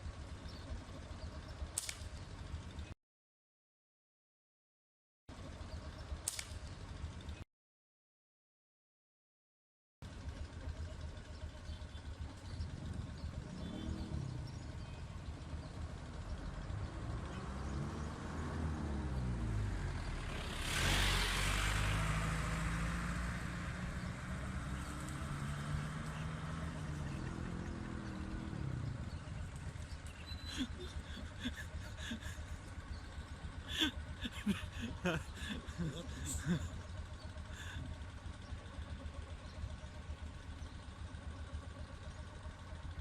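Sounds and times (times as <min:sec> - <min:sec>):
vehicles driving past: 0:10.1 - 0:43.0.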